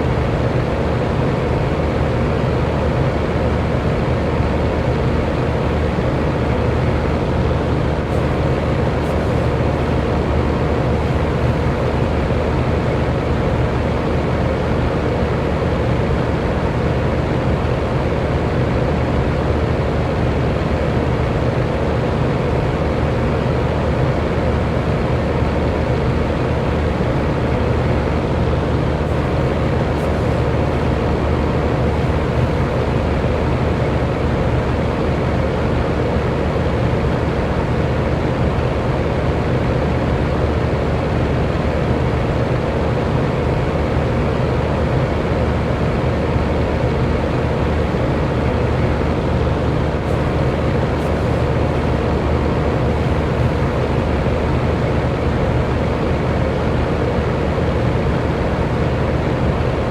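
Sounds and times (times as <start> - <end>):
fan air whooshing: 0.0 - 14.8, 24.6 - 36.6, 40.6 - 59.9
faint motor hum: 0.0 - 59.9.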